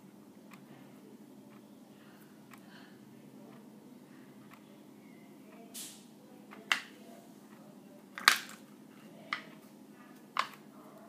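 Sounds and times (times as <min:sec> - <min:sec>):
plastic tools tapping on hard surface: 0:08.2 - 0:08.6.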